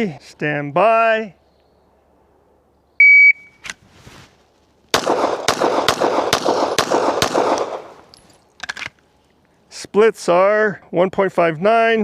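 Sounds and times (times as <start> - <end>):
shot timer beep: 3.0 - 3.6
pistol shots with echo: 4.9 - 8.0.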